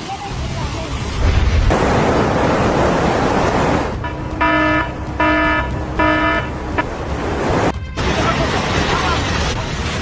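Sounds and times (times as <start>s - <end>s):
rushing noise: 0.0s - 10.0s
alarm buzzer beeping: 4.0s - 6.6s.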